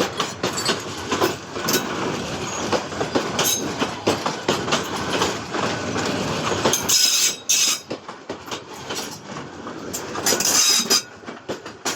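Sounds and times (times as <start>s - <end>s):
train wheels clattering over rails: 0.0s - 11.9s
shrill wheel squeals: 10.4s - 11.1s.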